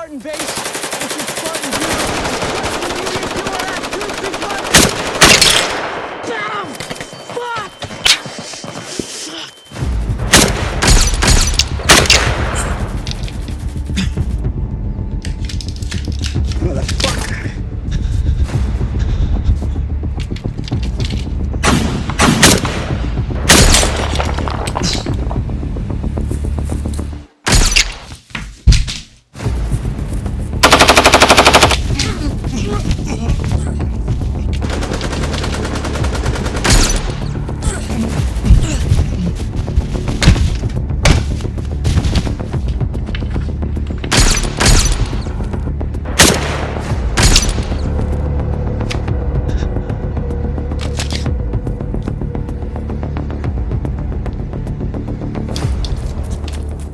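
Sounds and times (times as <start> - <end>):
automatic rifle firing: 30.6 - 31.8
gunshots: 46.1 - 47.6.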